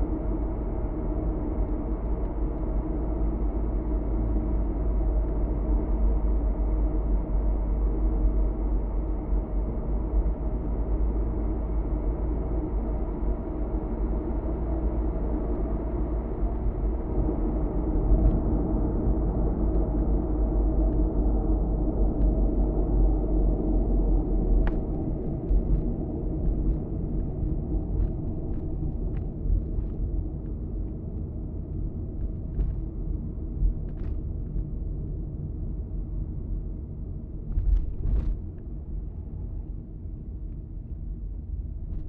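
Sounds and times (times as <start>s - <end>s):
car driving road rumble: 8.7s - 42.0s.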